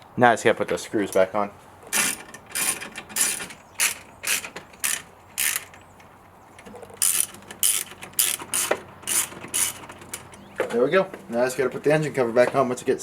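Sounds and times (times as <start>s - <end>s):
ratchet pawl rasping: 1.9s - 5.8s, 6.6s - 10.4s.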